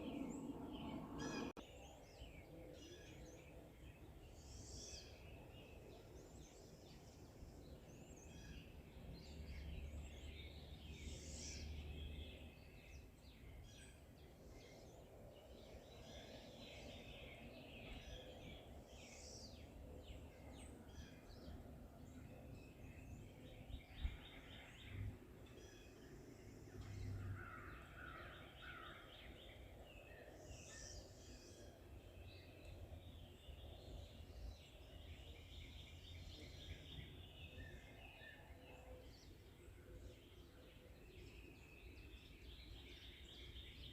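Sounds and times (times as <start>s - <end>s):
birds chirping and trilling: 0.0s - 43.9s.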